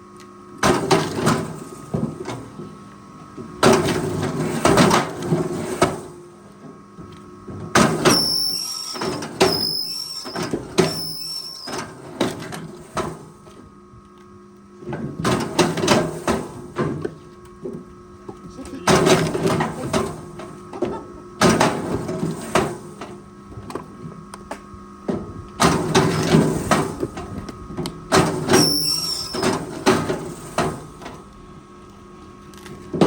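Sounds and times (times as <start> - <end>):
high-pitched squeal: 8.1 - 11.8.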